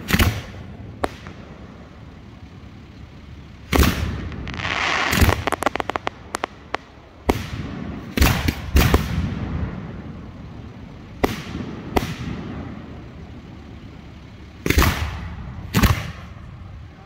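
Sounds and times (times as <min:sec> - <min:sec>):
fireworks crackling: 0:00.0 - 0:17.0
fireworks shells banging: 0:03.9 - 0:06.9.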